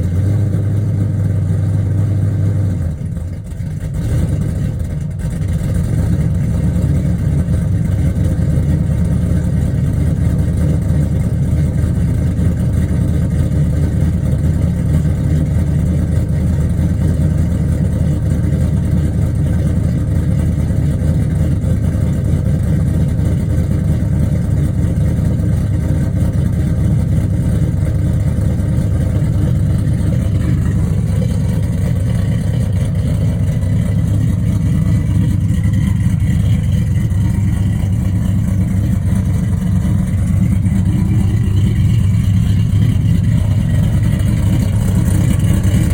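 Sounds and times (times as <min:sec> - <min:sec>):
engine idling with deep exhaust: 0:00.0 - 0:45.9.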